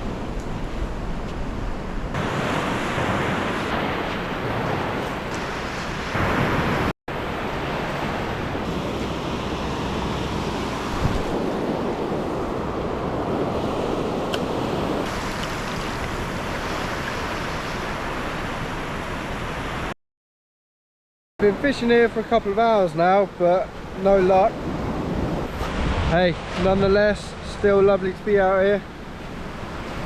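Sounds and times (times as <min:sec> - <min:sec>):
waves washing onto beach: 0:02.1 - 0:19.9
wind buffeting microphone: 0:07.7 - 0:18.8.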